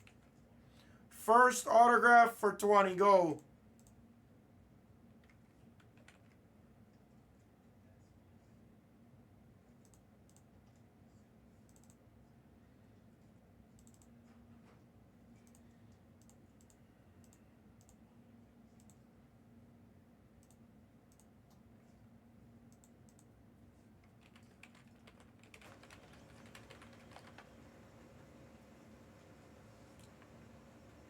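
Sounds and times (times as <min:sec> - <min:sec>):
keyboard typing: 0:05.2 - 0:06.4, 0:24.0 - 0:27.7.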